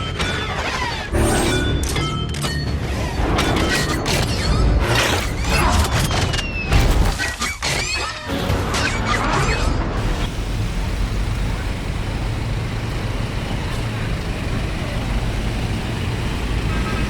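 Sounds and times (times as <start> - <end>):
music: 0.0 - 10.0.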